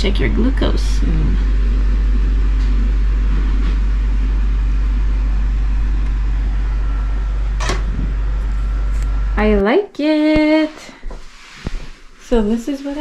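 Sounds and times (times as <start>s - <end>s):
loud low hum: 0.0s - 9.7s.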